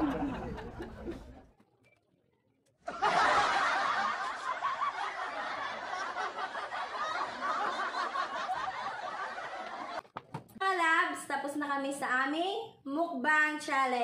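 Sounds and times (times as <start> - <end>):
laughter: 0.0 - 1.5, 2.8 - 10.1.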